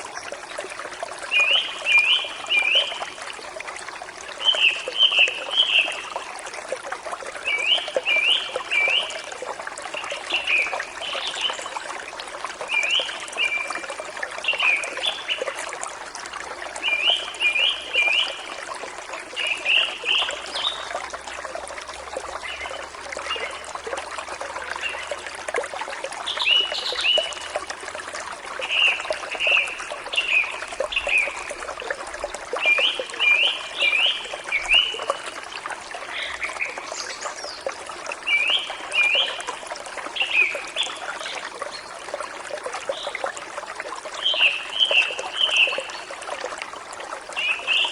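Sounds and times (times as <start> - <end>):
stream trickling: 0.0 - 47.9.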